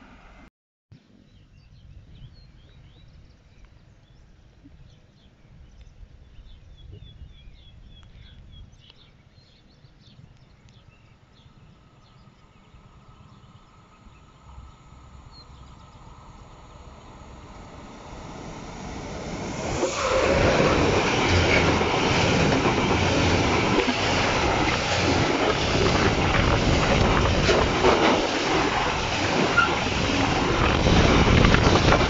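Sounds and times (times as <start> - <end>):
approaching train: 0.0 - 0.5, 11.1 - 32.0
small birds chirping: 1.2 - 17.3
wind on microphone: 1.5 - 9.0, 12.8 - 32.0.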